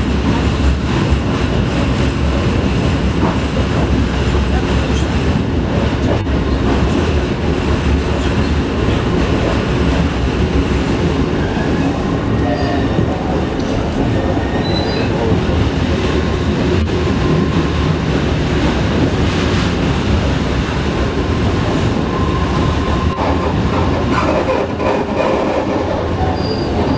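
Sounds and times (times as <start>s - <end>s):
train rumbling on rails: 0.0s - 26.9s
wheels squealing on rail: 11.4s - 13.0s, 14.2s - 15.3s, 21.7s - 26.9s.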